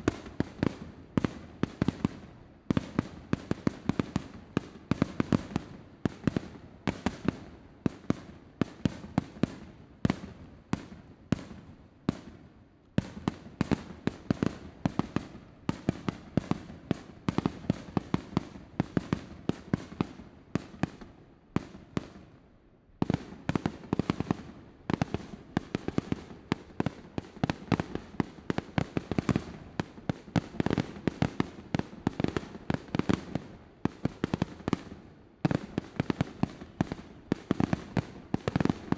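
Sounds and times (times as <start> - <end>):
fireworks bangs and crackling: 0.0 - 22.2, 23.0 - 38.9.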